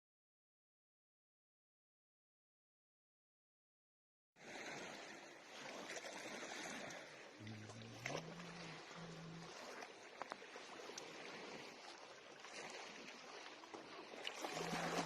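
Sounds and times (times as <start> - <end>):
flowing water rushing: 4.4 - 15.0
low hum: 7.4 - 10.1.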